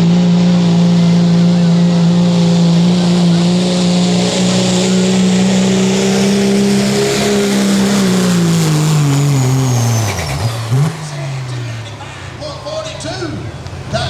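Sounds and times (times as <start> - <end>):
diesel engine at full throttle: 0.0 - 14.0
high turbo whistle: 3.2 - 11.5.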